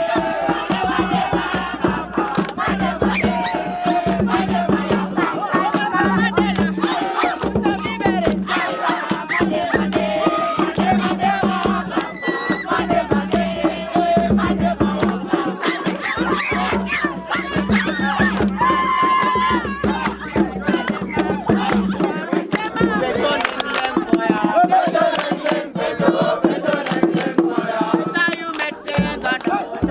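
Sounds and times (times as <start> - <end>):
crowd chanting and shouting: 0.0 - 29.9
loud music with fast percussion: 0.0 - 29.9.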